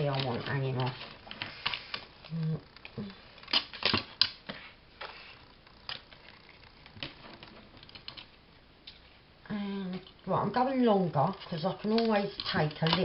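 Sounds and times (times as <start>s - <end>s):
paper rustling: 0.0s - 2.1s, 11.3s - 13.0s.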